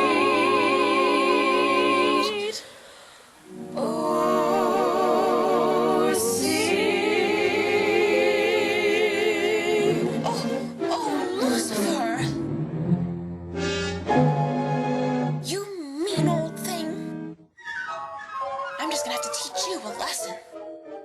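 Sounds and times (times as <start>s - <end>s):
wordless vocal harmonies: 0.0s - 12.8s
instrumental backing: 10.2s - 15.5s.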